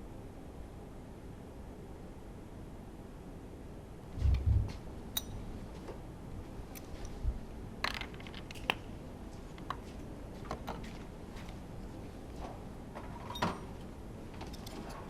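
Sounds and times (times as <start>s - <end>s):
metallic clicks and taps of tools: 5.2s - 5.4s.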